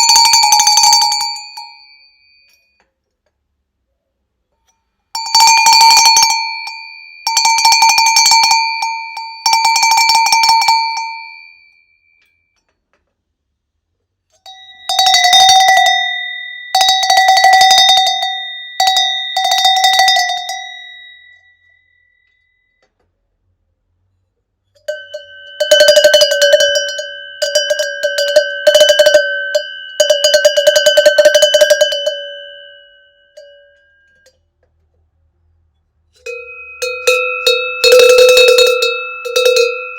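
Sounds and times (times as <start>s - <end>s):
cowbells clanking: 0.0s - 2.9s, 5.2s - 11.5s, 14.4s - 21.4s, 24.8s - 34.5s, 36.2s - 39.9s.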